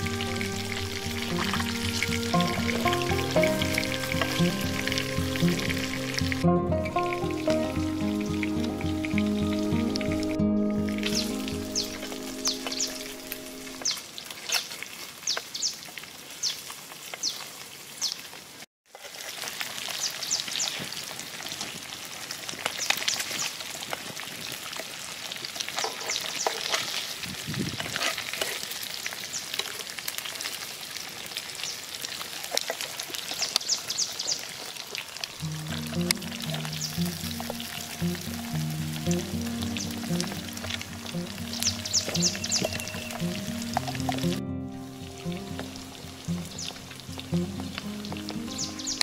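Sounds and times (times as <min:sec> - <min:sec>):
fish sizzling in a pot: 0:00.0 - 0:06.4, 0:18.3 - 0:44.4
wood fire crackling and popping: 0:00.0 - 0:10.2, 0:19.0 - 0:49.0.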